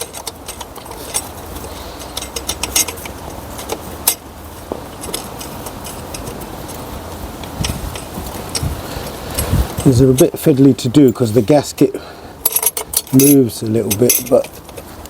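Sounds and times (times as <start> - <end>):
metallic clicks of bolts: 0.0 - 4.2, 12.4 - 14.9
steady low hum: 0.0 - 15.0.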